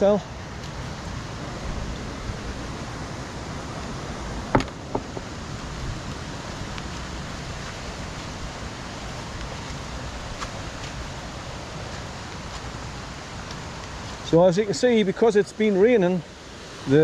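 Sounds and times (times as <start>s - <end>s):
river rushing: 0.0s - 17.0s
sharp knock: 4.5s - 5.2s.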